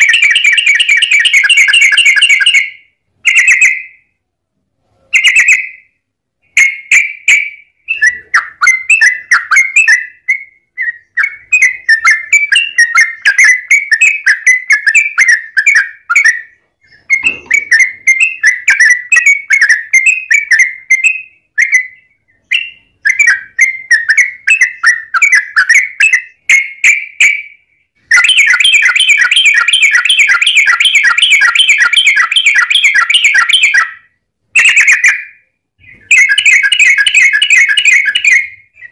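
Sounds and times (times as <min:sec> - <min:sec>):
bulbul singing: 0:00.0 - 0:04.2, 0:05.2 - 0:38.9.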